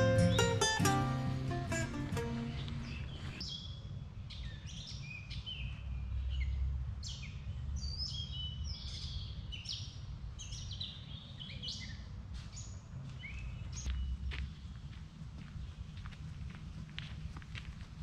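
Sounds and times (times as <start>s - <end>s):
steady low rumble: 0.0s - 3.4s, 13.8s - 18.0s
songbirds singing and chirping: 0.0s - 16.2s.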